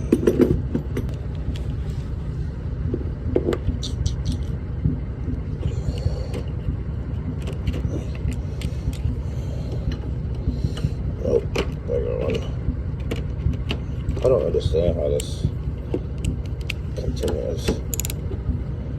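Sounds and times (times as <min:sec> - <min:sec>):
steady low rumble: 0:00.0 - 0:18.9
clicks and knocks: 0:17.7 - 0:18.3.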